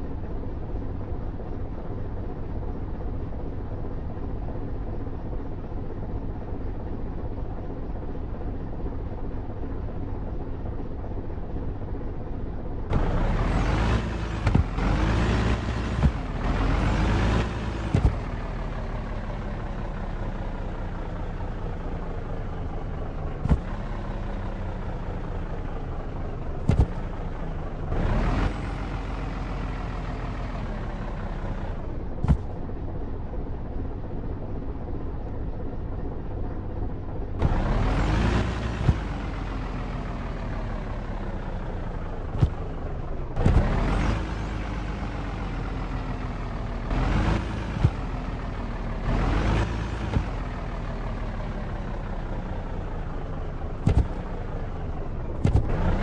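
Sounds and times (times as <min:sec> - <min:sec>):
truck engine revving: 0:12.9 - 0:21.8, 0:22.6 - 0:32.6, 0:37.4 - 0:56.0.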